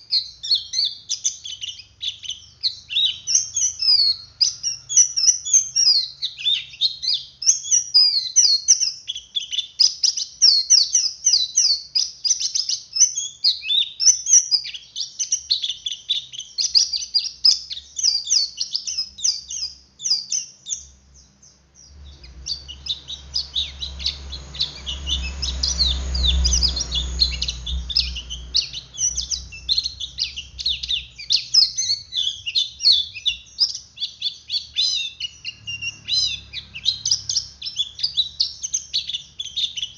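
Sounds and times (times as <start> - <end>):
bird twittering chatter: 0.0 - 39.9
low rumble: 21.9 - 31.3.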